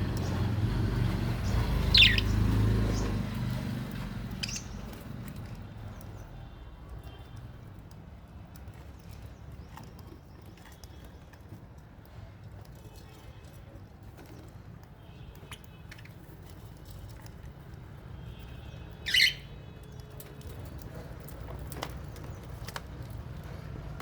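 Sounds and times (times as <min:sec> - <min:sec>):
small parrots chirping: 0:01.4 - 0:03.2, 0:04.3 - 0:05.1, 0:18.9 - 0:20.0.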